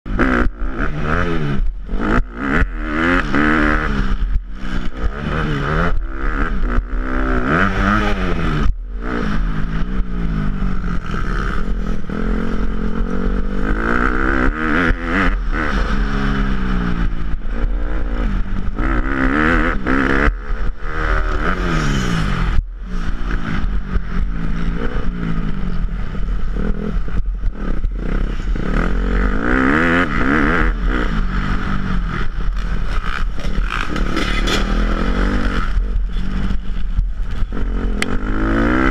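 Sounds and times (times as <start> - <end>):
dirt bike engine revving: 0.1 - 38.9
low rumble: 0.1 - 38.9
rattling clatter: 32.6 - 35.4.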